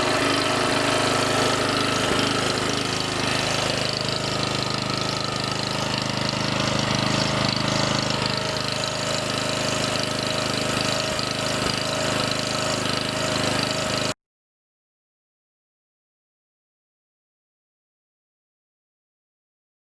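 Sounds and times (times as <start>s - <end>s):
mower engine running: 0.0s - 14.2s.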